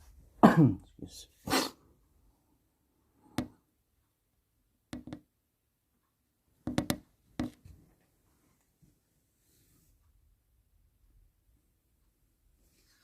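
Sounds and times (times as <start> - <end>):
sharp taps: 4.9 - 5.3, 6.7 - 7.6.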